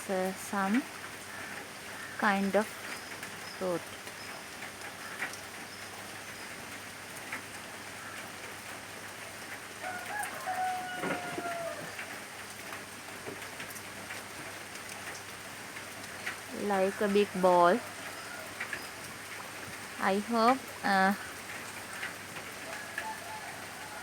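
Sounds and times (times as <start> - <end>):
steady rain falling: 0.0 - 24.0
water dripping: 0.1 - 23.9
rooster crowing: 9.8 - 12.1, 17.7 - 18.8, 22.6 - 24.0.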